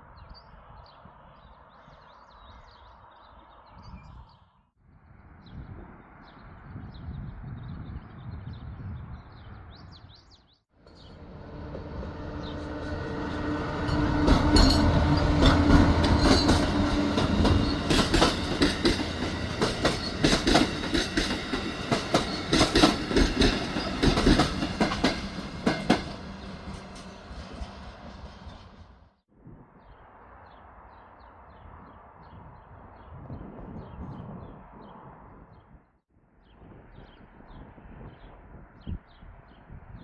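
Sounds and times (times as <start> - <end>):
passenger train passing: 10.8 - 29.2.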